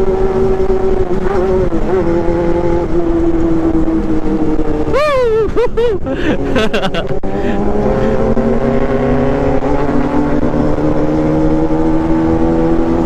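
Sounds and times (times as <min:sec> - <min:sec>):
motorcycle engine at high revs: 0:00.0 - 0:13.0.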